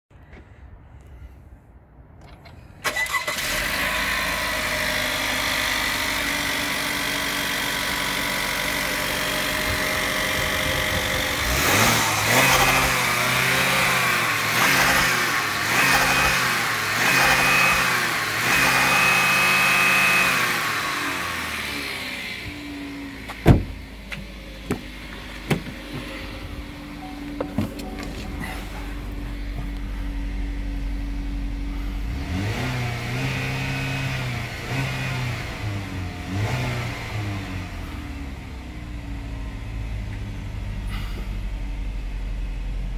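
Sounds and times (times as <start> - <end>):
car engine starting and revving: 2.8 - 42.9
sharp thump: 23.3 - 26.1.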